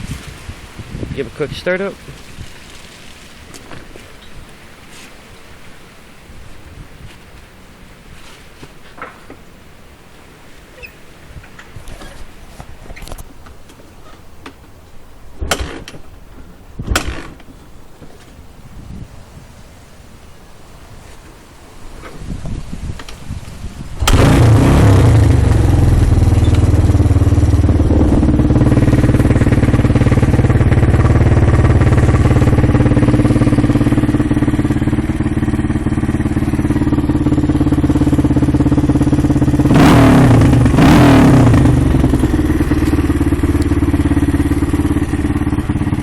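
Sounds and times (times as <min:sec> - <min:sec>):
motorcycle engine starting and idling: 0:10.8 - 0:17.7, 0:22.0 - 0:46.0.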